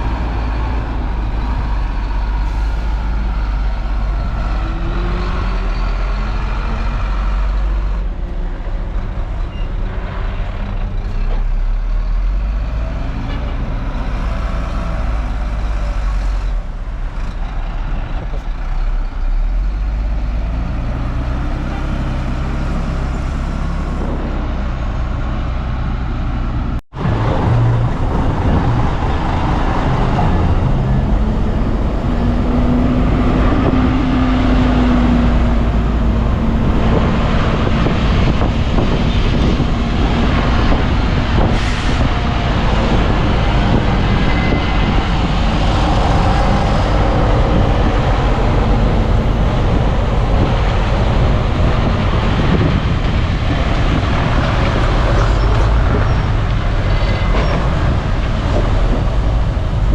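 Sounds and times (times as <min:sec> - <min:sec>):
diesel machinery engine under load: 0:00.0 - 0:59.9.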